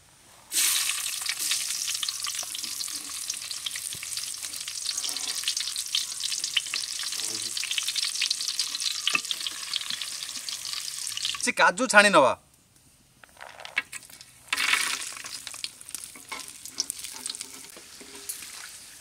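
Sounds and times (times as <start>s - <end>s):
sizzling and crackling in oil: 0.5s - 11.4s, 13.5s - 19.0s
ladle stirring: 0.6s - 6.9s, 8.4s - 10.6s, 14.1s - 18.7s.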